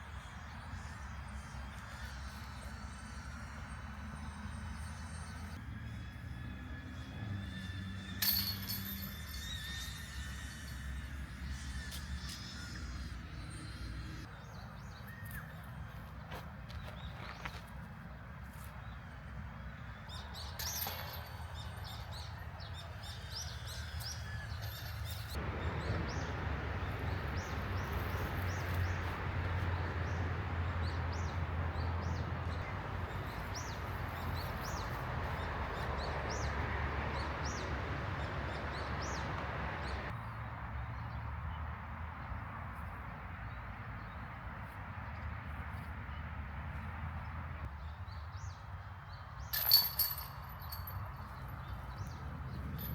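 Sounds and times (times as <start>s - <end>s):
outdoor background noise: 0.0s - 52.9s
birds chirping: 18.8s - 41.2s.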